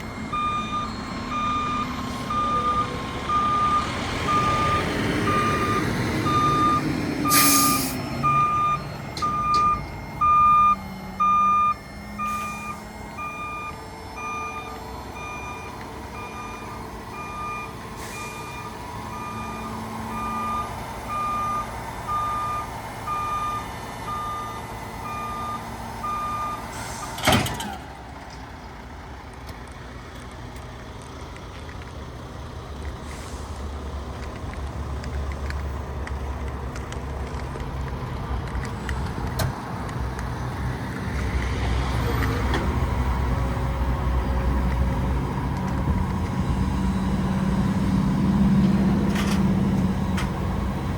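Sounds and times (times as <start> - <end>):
truck reverse alarm beeping: 0.0 - 27.9, 42.6 - 50.9
diesel engine running: 0.0 - 50.9
air brakes blast: 7.3 - 8.0, 12.2 - 12.8, 18.0 - 18.6, 26.6 - 27.8, 33.0 - 33.7.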